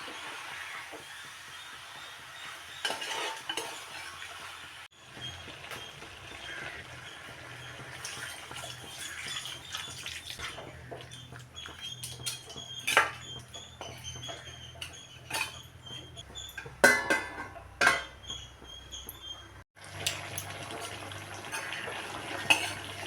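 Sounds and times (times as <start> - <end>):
utensils and dishes clinking: 2.8 - 4.2, 7.7 - 23.0
running water: 3.3 - 13.1.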